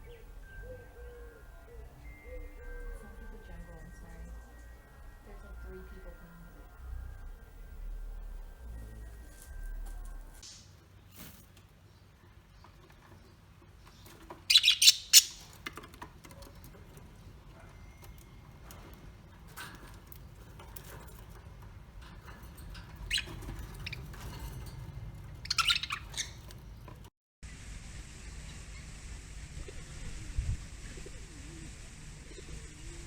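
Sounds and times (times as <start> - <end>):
bird rapid high calls: 14.5 - 15.5, 25.4 - 26.4.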